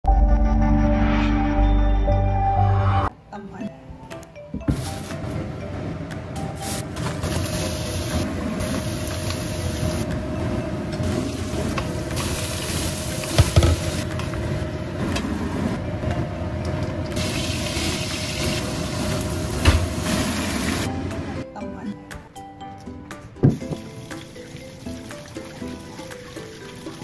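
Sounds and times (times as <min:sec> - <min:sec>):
vegetables sizzling in a wok: 0:17.2 - 0:19.3.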